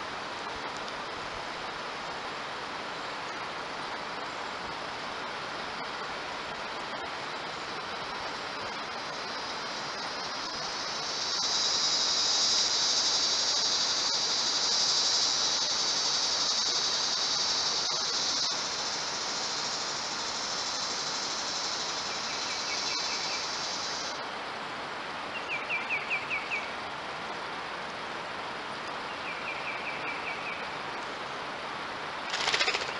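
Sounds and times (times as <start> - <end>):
insect buzzing: 4.0 - 24.2, 32.3 - 32.9.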